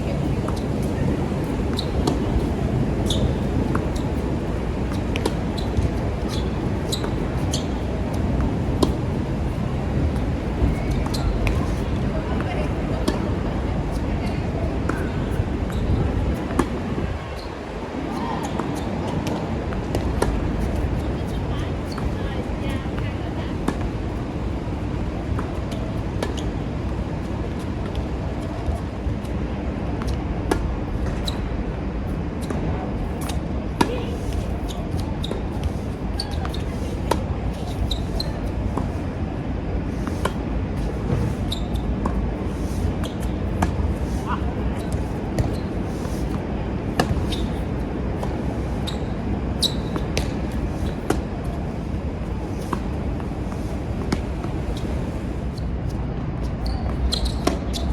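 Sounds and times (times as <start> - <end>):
tennis balls bouncing on court: 0.0 - 31.4, 32.4 - 39.0, 39.9 - 55.7, 56.4 - 57.9
wind rumble on microphone: 0.0 - 57.9
tennis balls struck by rackets: 0.4 - 14.0, 42.8 - 48.5, 49.6 - 51.9.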